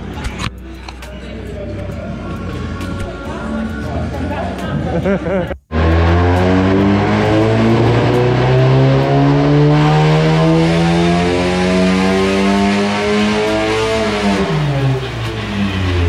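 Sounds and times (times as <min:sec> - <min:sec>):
car engine at high revs: 0:05.7 - 0:16.0.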